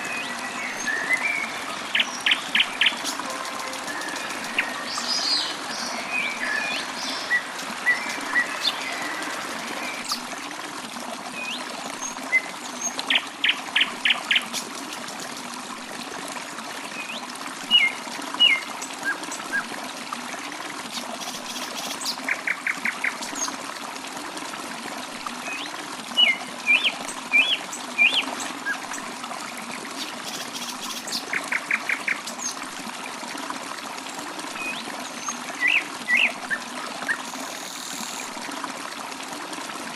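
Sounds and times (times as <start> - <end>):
water trickling: 0.0 - 39.9
birds chirping and whistling: 0.1 - 10.2.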